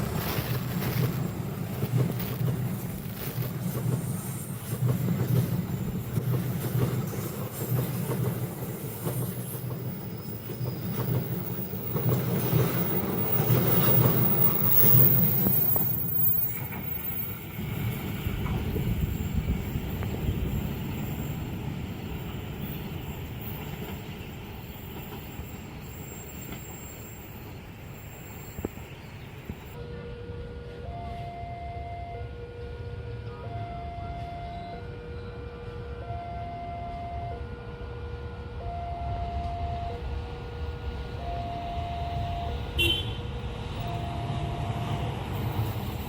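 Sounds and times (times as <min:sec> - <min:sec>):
train wheels clattering on rails: 0:00.0 - 0:29.8.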